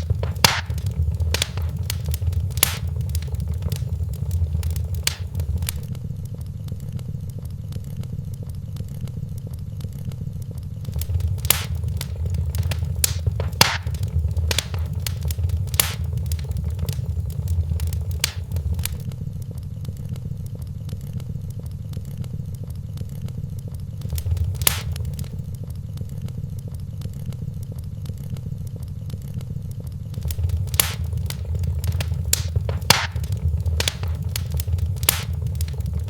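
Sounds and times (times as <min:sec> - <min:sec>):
fire crackling and popping: 0:00.0 - 0:06.0, 0:09.3 - 0:20.6, 0:22.2 - 0:27.4, 0:30.1 - 0:36.0
fire rumbling: 0:00.0 - 0:06.0, 0:10.8 - 0:19.5, 0:24.0 - 0:26.5, 0:30.1 - 0:36.0.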